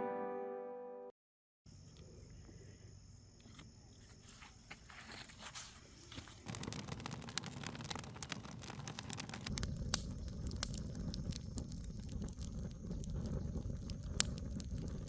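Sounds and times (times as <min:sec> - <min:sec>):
music: 0:00.0 - 0:01.1
faint crackling and clicks: 0:04.9 - 0:15.0.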